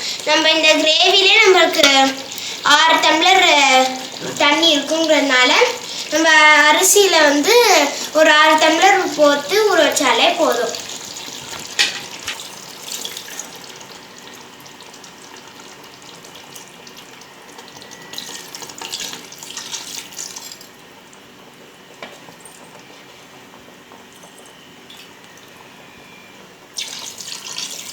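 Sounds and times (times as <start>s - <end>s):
water pouring and splashing: 0.0s - 20.8s, 26.8s - 27.9s
gravy sizzling in a pot: 0.0s - 27.9s.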